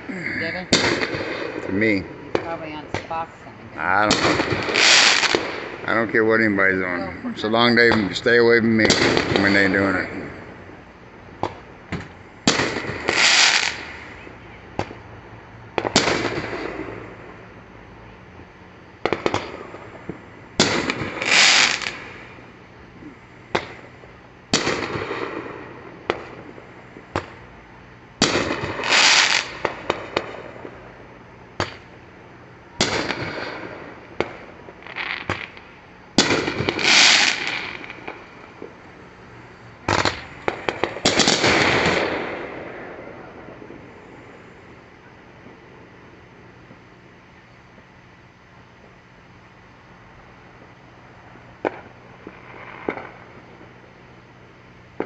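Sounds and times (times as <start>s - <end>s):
fireworks bang and crackle: 0.0s - 55.0s
single firework pops: 0.7s - 1.7s, 2.3s - 3.2s, 11.4s - 14.2s, 14.8s - 15.0s, 15.8s - 17.0s, 19.0s - 22.2s, 23.5s - 23.9s, 24.5s - 27.4s, 28.2s - 30.8s, 31.6s - 31.9s, 32.8s - 38.8s, 39.8s - 42.6s, 51.6s - 53.7s.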